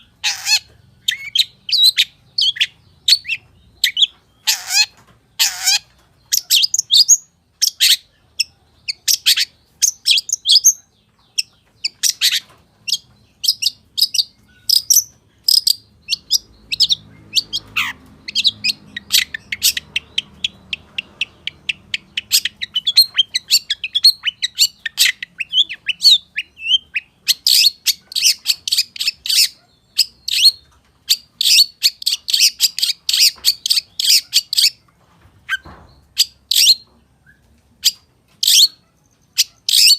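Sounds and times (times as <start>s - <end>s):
bird singing with chirps and whistles: 0.0s - 34.8s, 35.5s - 39.9s.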